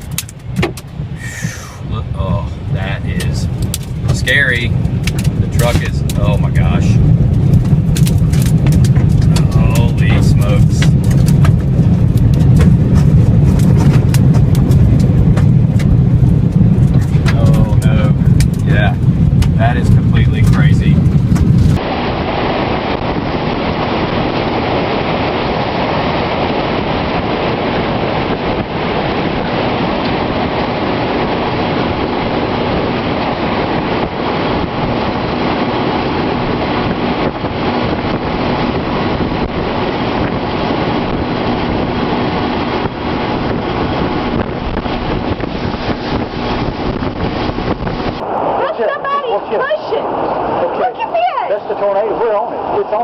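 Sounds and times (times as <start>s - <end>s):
loud rushing noise: 1.1s - 7.5s, 31.9s - 51.3s.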